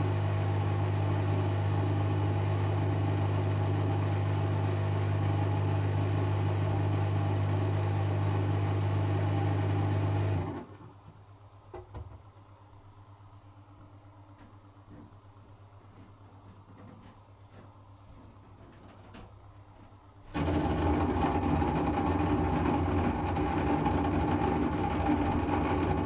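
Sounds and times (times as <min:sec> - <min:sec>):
washing machine spinning: 0:00.0 - 0:10.8, 0:17.6 - 0:26.0.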